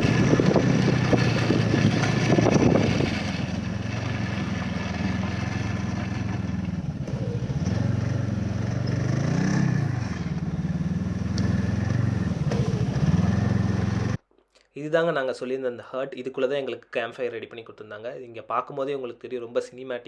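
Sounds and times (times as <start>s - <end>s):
wind buffeting microphone: 0.0s - 4.7s
snowmobile engine running: 0.0s - 14.2s.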